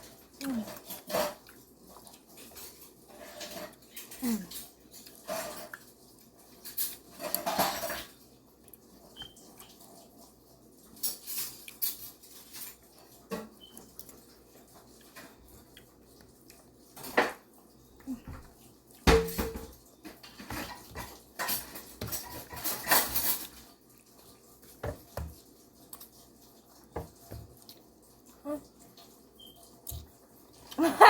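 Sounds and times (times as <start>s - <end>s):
cutlery clinking on dishes: 6.5s - 8.2s, 10.9s - 13.8s, 19.1s - 23.7s.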